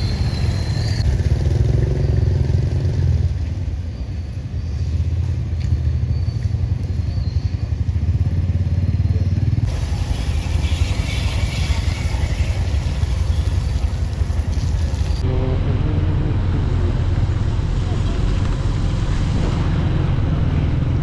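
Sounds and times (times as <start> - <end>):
small engine running: 7.4 - 19.3
high hiss: 9.7 - 15.2.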